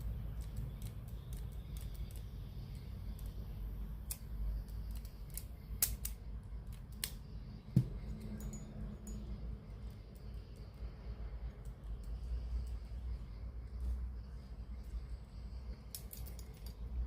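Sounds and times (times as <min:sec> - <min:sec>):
low steady hum: 0:00.0 - 0:17.0
tools clicking and tapping: 0:04.0 - 0:10.8, 0:15.8 - 0:17.0.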